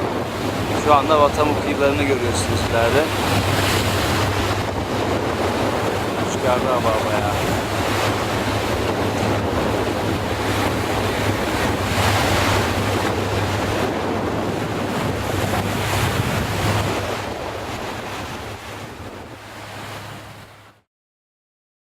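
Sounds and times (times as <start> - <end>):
wind buffeting microphone: 0.0 - 20.7
boat engine hum: 0.0 - 20.8
water rushing past hull: 0.0 - 20.8.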